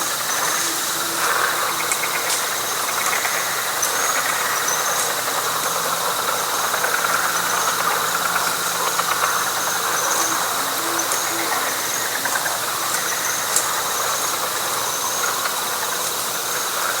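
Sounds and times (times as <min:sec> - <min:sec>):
frogs calling: 0:00.0 - 0:17.0.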